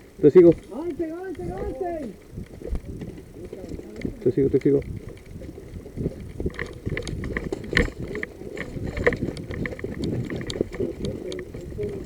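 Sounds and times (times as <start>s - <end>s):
carried gear rustling and knocking: 0.0s - 12.0s
footsteps on rough ground: 0.0s - 12.0s
clicks: 0.4s - 12.0s.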